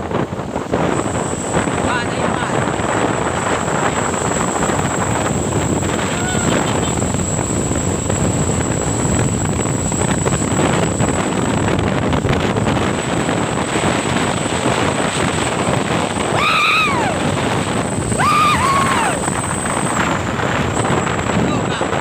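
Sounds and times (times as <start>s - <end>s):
wind noise: 0.0s - 22.0s
rising and falling calls: 16.4s - 17.2s, 18.2s - 19.2s.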